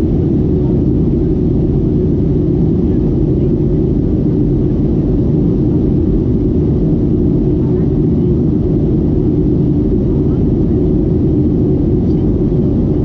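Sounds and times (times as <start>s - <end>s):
jet engines roaring in cabin: 0.0s - 13.0s.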